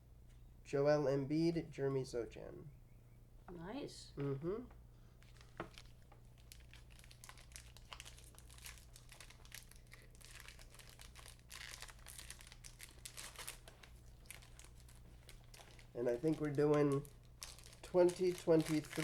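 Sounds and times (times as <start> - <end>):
plastic wrapper crinkling: 5.2 - 19.0.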